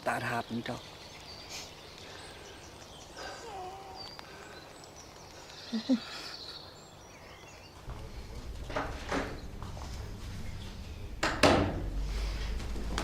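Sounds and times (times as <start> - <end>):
faint bird calls: 1.0 - 7.8
low rumble: 7.8 - 13.0.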